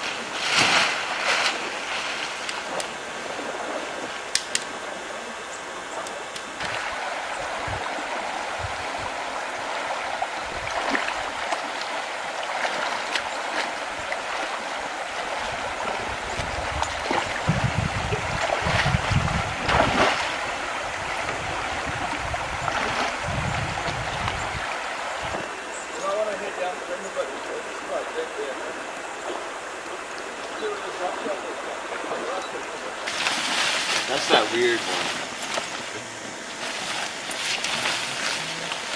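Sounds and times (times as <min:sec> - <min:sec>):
short splashes or knocks: 0:00.0 - 0:02.8, 0:15.8 - 0:20.4
water rushing: 0:00.0 - 0:38.9.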